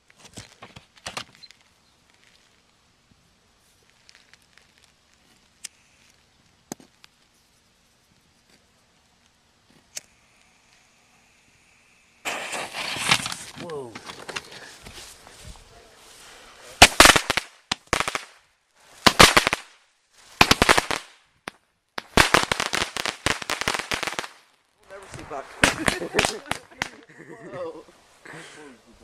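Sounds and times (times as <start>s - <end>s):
firework crackling: 0.0s - 27.1s
firework click: 3.8s - 7.3s, 9.2s - 15.1s, 16.8s - 27.0s
firework cracking reports: 9.9s - 27.1s.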